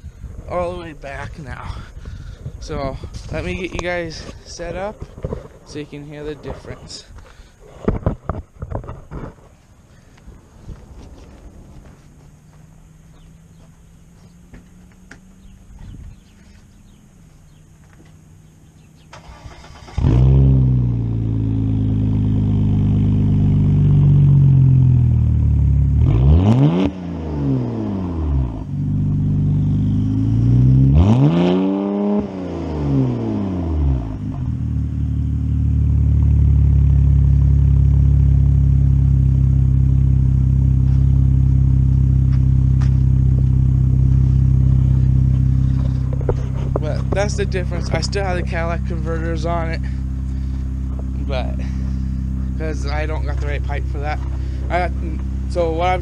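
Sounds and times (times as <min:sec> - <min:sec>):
car engine starting and idling: 0:00.2 - 0:56.0
car engine revving: 0:10.2 - 0:56.0.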